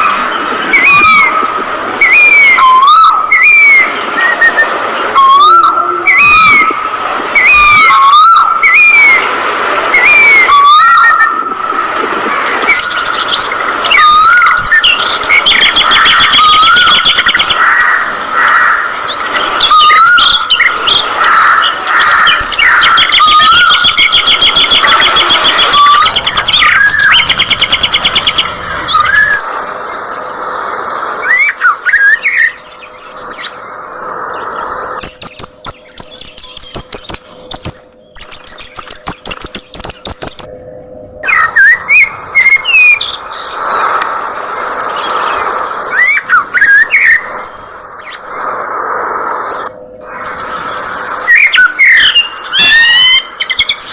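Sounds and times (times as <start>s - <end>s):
budgerigars chirping and warbling: 12.7s - 29.4s, 50.1s - 53.9s.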